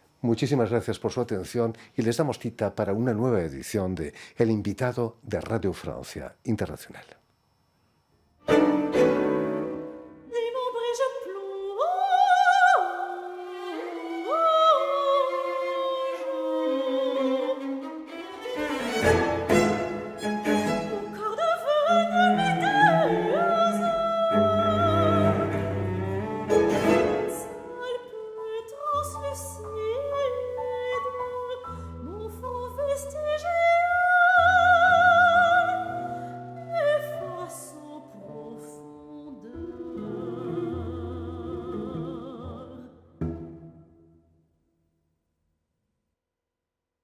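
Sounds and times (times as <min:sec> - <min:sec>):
operatic soprano singing: 0:09.2 - 0:43.2
bowed strings: 0:13.2 - 0:27.9, 0:39.6 - 0:44.2
low cello notes: 0:13.3 - 0:27.9.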